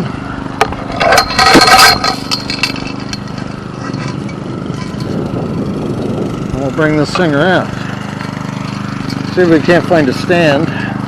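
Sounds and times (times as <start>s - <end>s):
small engine idling: 0.0s - 11.0s
gate rattling open: 0.8s - 5.3s.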